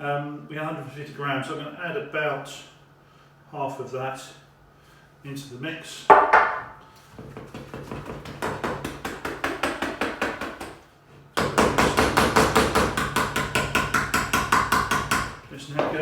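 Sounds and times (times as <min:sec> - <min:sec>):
whisk knocking against bowl: 0:07.2 - 0:10.8.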